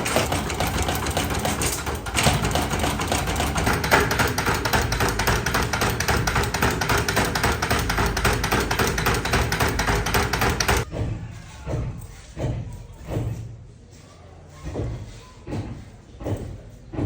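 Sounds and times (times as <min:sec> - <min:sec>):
factory machine clattering: 0:00.0 - 0:11.1.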